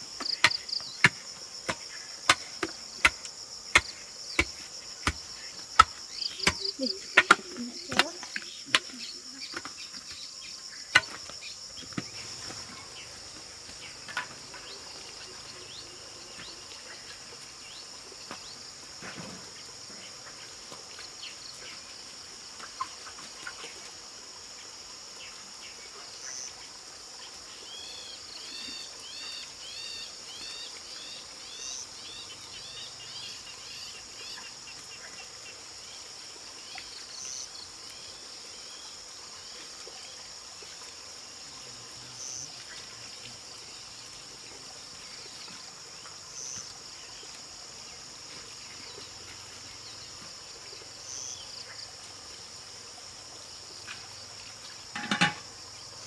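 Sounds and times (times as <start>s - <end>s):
insect chorus drone: 0.0s - 56.0s
sharp knocks: 0.2s - 9.0s, 55.0s - 55.4s.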